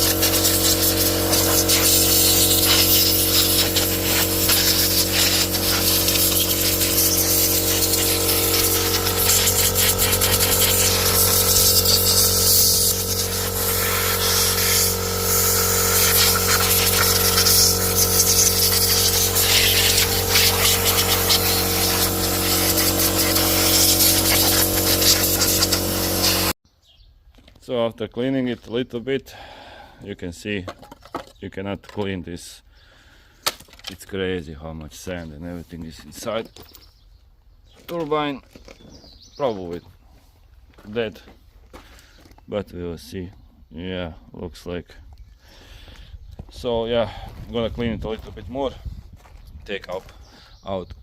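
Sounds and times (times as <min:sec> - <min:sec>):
hiss of water spray: 0:00.0 - 0:26.5
pressure washer motor hum: 0:00.0 - 0:26.6.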